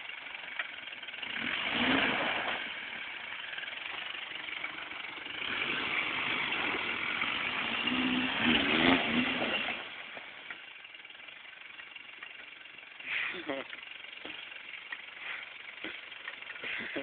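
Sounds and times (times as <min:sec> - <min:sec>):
engine revving under load: 0:01.2 - 0:03.6, 0:04.7 - 0:10.4.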